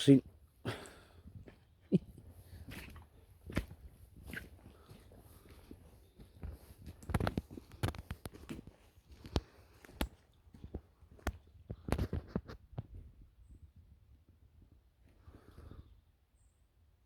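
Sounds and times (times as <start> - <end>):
footsteps on rough forest ground: 0.2 - 12.5.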